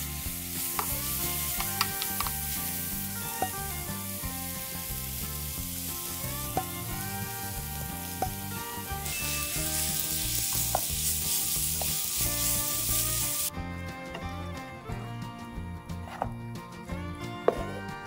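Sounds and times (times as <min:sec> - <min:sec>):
vegetables sizzling in a pan: 0:00.0 - 0:13.5
wooden spatula clicking on pan: 0:00.6 - 0:02.5, 0:08.1 - 0:08.5.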